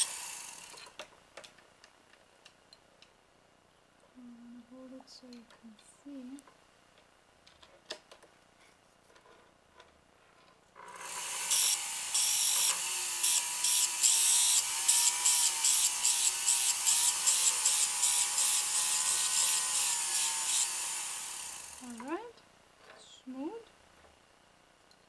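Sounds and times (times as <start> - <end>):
rotary tool grinding whine: 0.0 - 0.9, 10.8 - 22.2.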